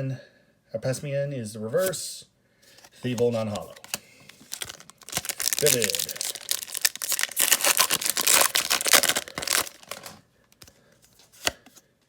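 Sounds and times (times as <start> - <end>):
foil wrapper crinkling and tearing: 2.8 - 10.2.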